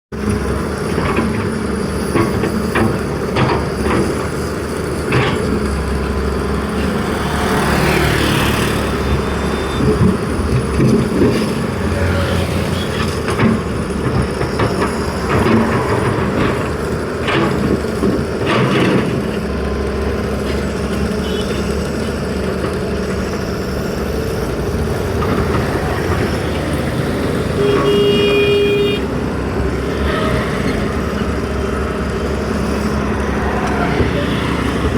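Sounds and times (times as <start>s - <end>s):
vehicle engine and traffic: 0.1s - 34.9s
car horn toot: 21.2s - 21.7s, 27.5s - 29.2s.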